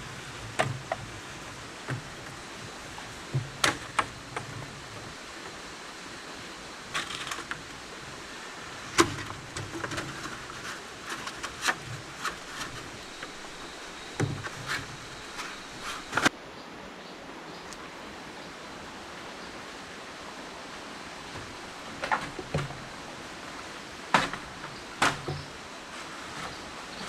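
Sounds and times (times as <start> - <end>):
steady background hiss: 0.0 - 27.0
wooden pieces knocking and clicking: 7.0 - 7.8, 21.4 - 22.9, 24.1 - 25.6.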